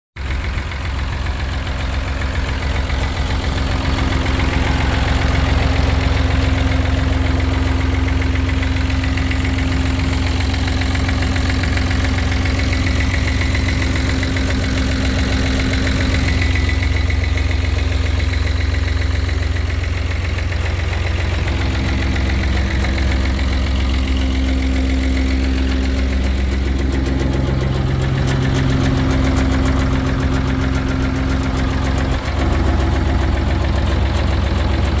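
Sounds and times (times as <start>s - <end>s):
tractor diesel engine idling: 0.2s - 35.0s.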